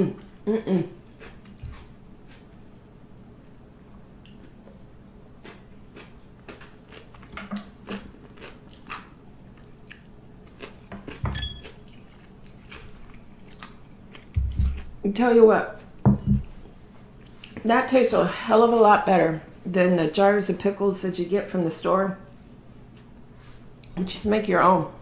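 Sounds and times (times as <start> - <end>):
crunchy chewing: 1.1 - 2.6, 5.4 - 15.0
loud ringing clink: 11.3 - 11.7.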